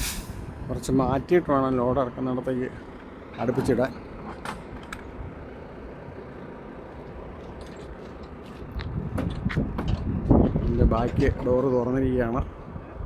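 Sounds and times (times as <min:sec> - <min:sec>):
semi-truck idling: 0:00.0 - 0:08.8.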